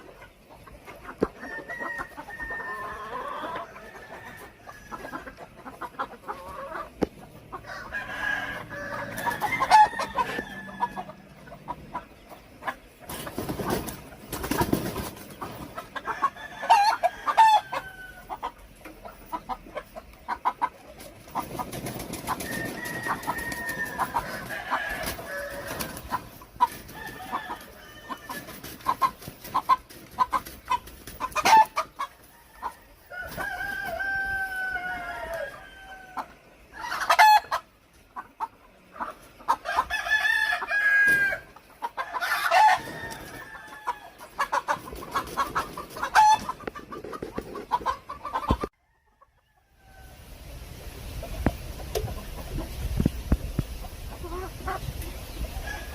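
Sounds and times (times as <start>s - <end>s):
chickens clucking: 0.0s - 55.9s
rooster crowing: 1.5s - 5.1s, 7.6s - 11.2s, 16.1s - 18.3s, 22.4s - 26.0s, 26.9s - 28.5s, 32.4s - 36.2s, 39.7s - 41.5s, 42.1s - 44.2s.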